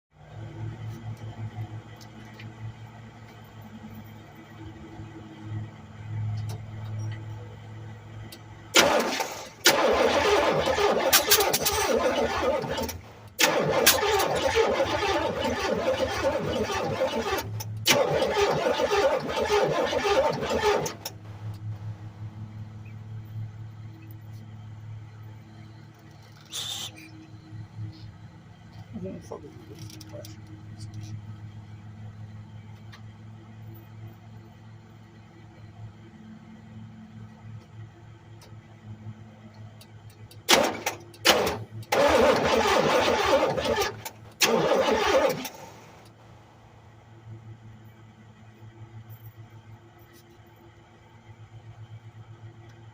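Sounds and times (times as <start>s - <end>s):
car engine running and idling: 0.2s - 52.9s
engine starter cranking: 8.8s - 21.6s, 40.4s - 46.1s
short burst of noise: 26.2s - 27.1s.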